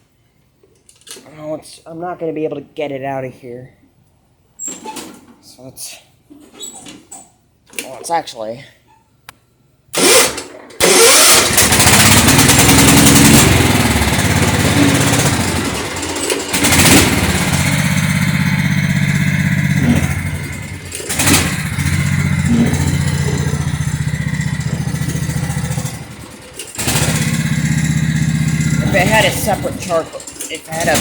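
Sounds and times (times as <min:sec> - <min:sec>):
engine cranking: 0:10.0 - 0:31.0
lawn tractor engine running unevenly: 0:10.0 - 0:31.0.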